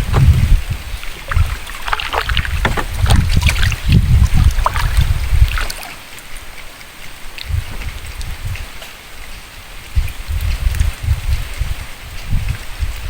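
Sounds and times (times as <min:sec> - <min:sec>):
wind buffeting the microphone: 0:00.0 - 0:05.8, 0:07.3 - 0:13.0
water splashing around a boat: 0:00.0 - 0:09.3.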